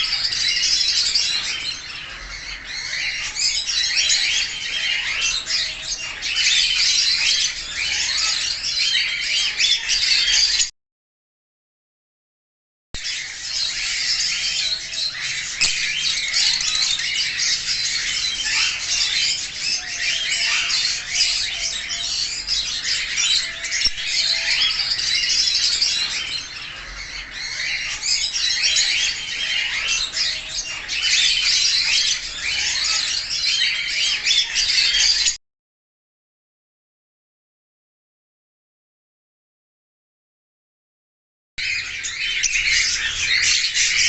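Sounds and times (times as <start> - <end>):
budgerigars chattering and chirping: 0.0 - 10.7, 13.0 - 35.4, 41.6 - 44.0.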